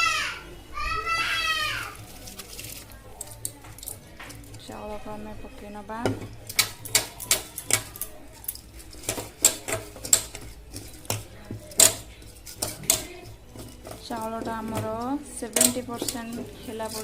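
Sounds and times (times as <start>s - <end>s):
metal spoon tapping cooking pot: 5.6s - 17.0s.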